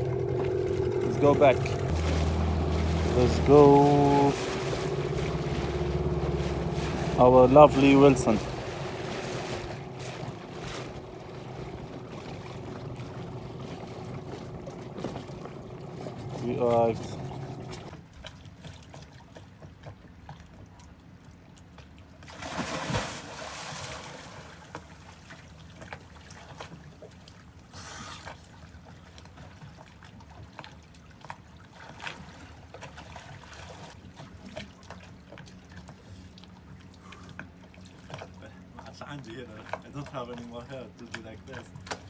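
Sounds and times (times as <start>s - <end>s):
water gushing: 0.0s - 17.9s.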